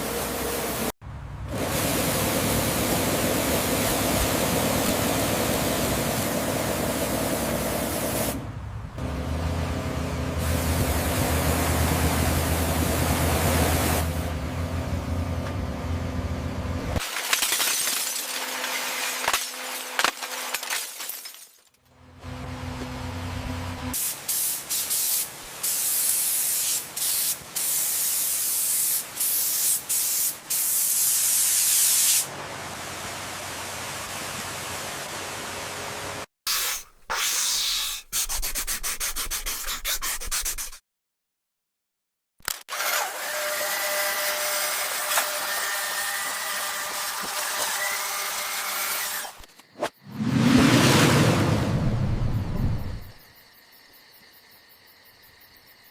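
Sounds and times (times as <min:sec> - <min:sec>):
hissing and rubbing noise: 0:36.5 - 0:40.8.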